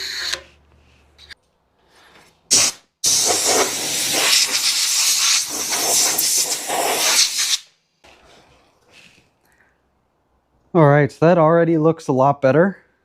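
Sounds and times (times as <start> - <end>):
pressurised jet hissing: 2.5 - 7.7.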